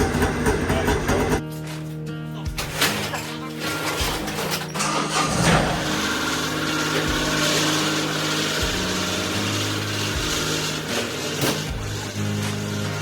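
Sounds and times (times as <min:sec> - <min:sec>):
snowmobile engine running: 0:00.0 - 0:01.4, 0:05.1 - 0:13.0.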